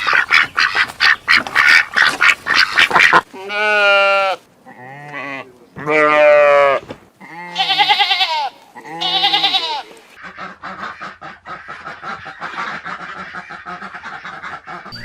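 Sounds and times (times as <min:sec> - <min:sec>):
farm animal bleating: 0:00.0 - 0:11.2.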